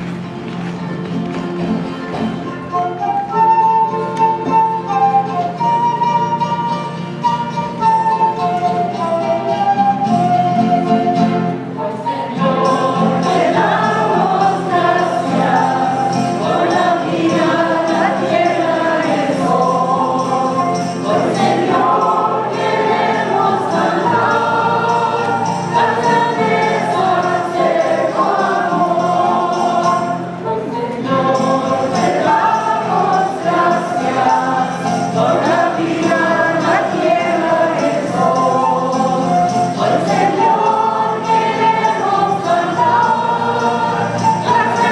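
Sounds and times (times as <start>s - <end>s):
instrumental accompaniment: 0.0s - 44.9s
church choir singing a hymn: 11.8s - 44.9s.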